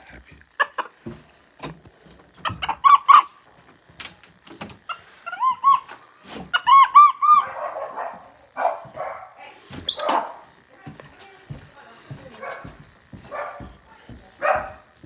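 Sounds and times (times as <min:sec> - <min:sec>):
monkeys chirping: 0:00.0 - 0:01.0, 0:02.4 - 0:03.4, 0:04.9 - 0:07.6, 0:09.9 - 0:10.4
rough noisy monkey call: 0:02.4 - 0:03.4, 0:04.9 - 0:07.6.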